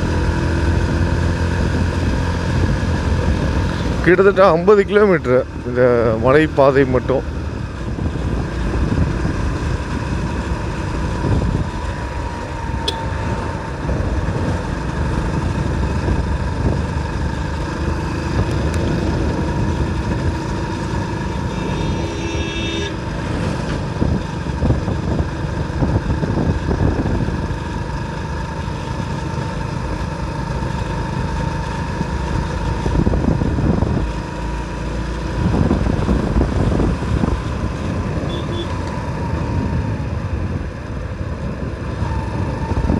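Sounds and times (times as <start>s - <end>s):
motorcycle running: 0.0s - 42.9s
vehicle horn: 12.8s - 13.2s, 21.0s - 23.4s, 38.2s - 38.9s.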